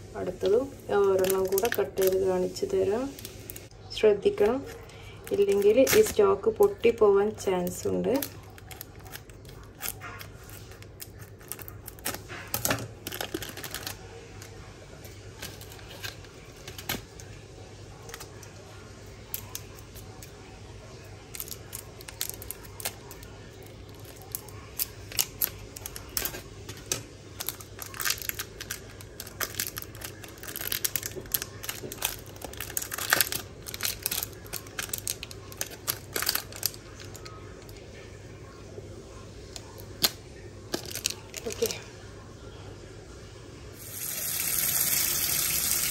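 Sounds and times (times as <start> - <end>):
plastic wrapper crinkling: 0.1 - 17.4, 20.9 - 38.0, 39.5 - 41.8
scissors snipping plastic wrapper: 1.2 - 2.2, 4.4 - 7.0, 7.6 - 14.5, 21.3 - 37.3, 40.0 - 41.7.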